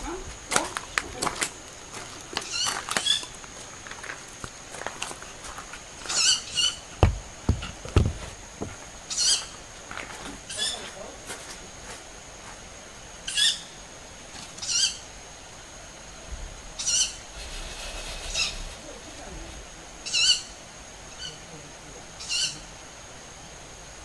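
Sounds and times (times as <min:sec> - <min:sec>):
high wavering bird calls: 0:02.4 - 0:03.4, 0:06.0 - 0:07.0, 0:09.1 - 0:09.6, 0:10.5 - 0:10.9, 0:13.2 - 0:13.8, 0:14.6 - 0:15.1, 0:16.8 - 0:19.1, 0:20.0 - 0:21.5, 0:22.2 - 0:22.7.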